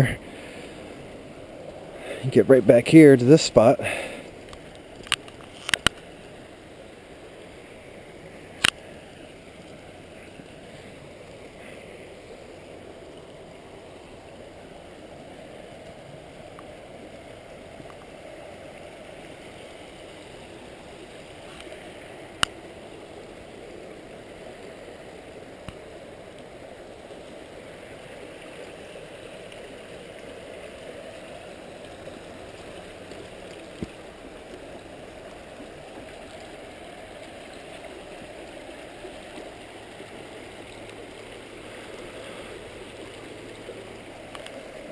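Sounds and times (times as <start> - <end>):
river water rushing over rapids: 0.0 - 44.9.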